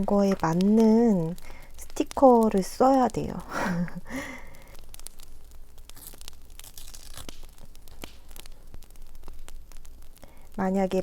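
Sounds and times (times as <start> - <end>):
campfire crackling: 0.0 - 11.0
paper rustling and tearing: 5.9 - 8.5.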